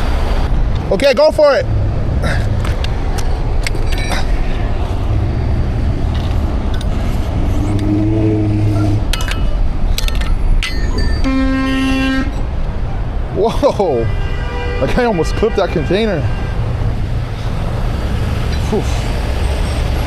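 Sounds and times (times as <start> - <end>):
trucks idling: 0.0 - 14.0
passing traffic: 0.0 - 20.0
vehicle horn: 11.2 - 12.4, 14.0 - 16.7.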